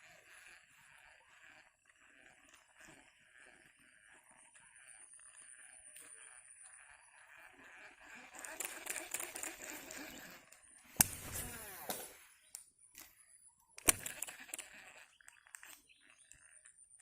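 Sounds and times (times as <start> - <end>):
reel spool whirring: 0.0 - 17.0
fishing reel sharp click: 8.3 - 17.0.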